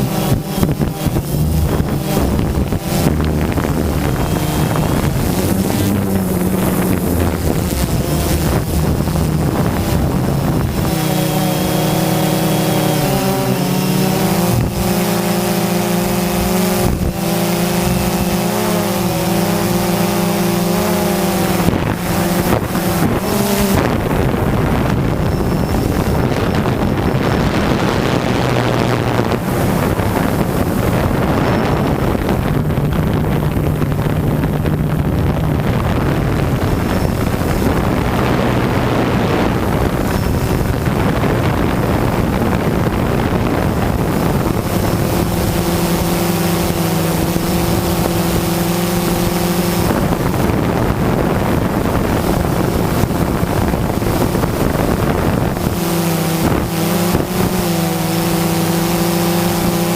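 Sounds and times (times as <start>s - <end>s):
drone propellers buzzing: 0.0s - 59.9s
steady hum with overtones: 0.0s - 59.9s
wind noise on microphone: 0.0s - 59.9s.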